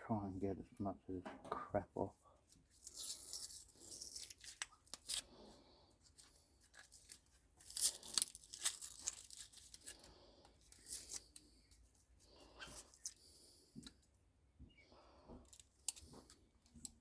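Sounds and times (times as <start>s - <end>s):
material tearing and scraping: 6.6s - 10.1s.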